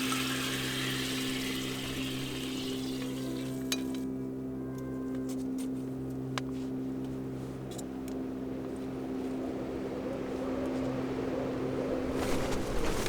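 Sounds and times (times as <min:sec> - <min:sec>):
wind gusting against a tent: 0:09.0 - 0:13.0.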